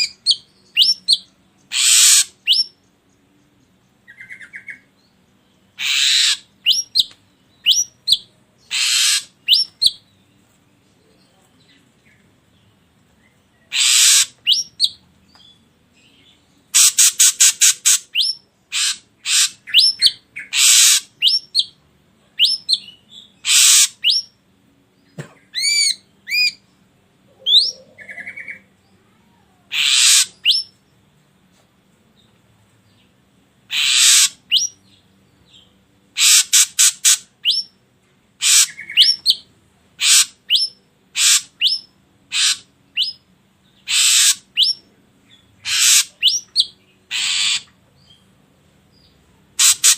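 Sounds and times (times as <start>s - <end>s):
bird harsh rasping calls: 0.0s - 2.8s, 5.7s - 7.1s, 7.7s - 10.0s, 13.7s - 15.0s, 16.7s - 21.8s, 22.4s - 24.3s, 25.5s - 26.6s, 29.7s - 30.8s, 33.7s - 34.8s, 36.1s - 37.7s, 38.4s - 47.8s, 49.5s - 49.9s.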